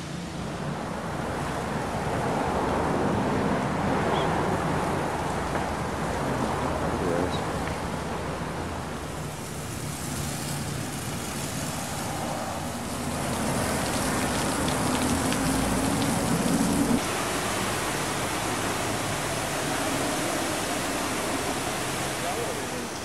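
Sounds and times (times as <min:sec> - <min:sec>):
pressure washer spraying water: 0:09.0 - 0:23.0.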